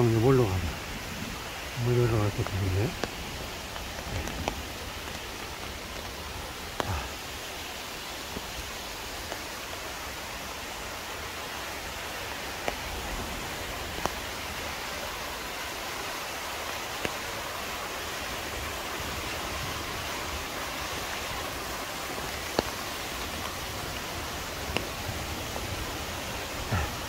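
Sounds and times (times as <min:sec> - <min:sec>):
stream and waterfall rushing: 0:00.0 - 0:27.0.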